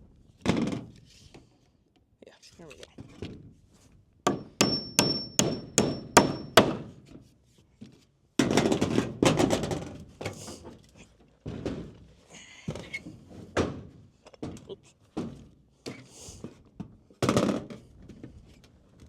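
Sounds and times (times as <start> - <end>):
hammer striking nail into wood: 4.3 - 6.9
clatter of wood and metal: 8.4 - 15.6.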